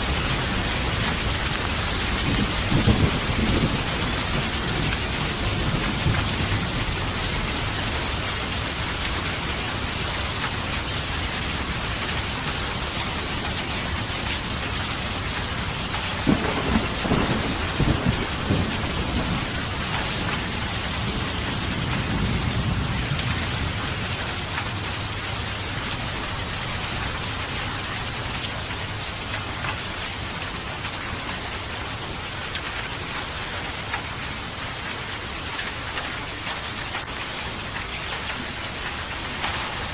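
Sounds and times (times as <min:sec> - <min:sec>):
thunder rolling and cracking: 0:00.0 - 0:09.5, 0:15.6 - 0:25.1
heavy rainfall: 0:00.0 - 0:39.9.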